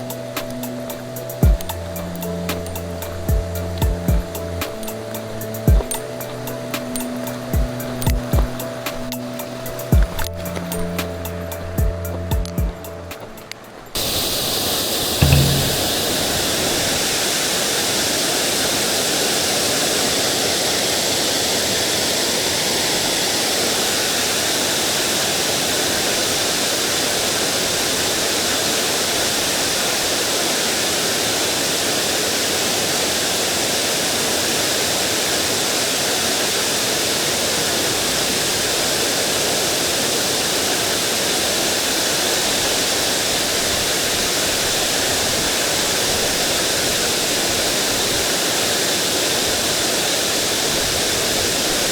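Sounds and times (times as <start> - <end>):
stream water rushing: 0.0 - 16.8.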